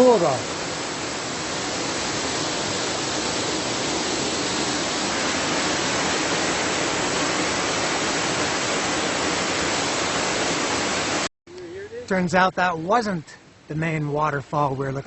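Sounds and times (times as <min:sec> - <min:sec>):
waterfall rushing: 0:00.0 - 0:11.3.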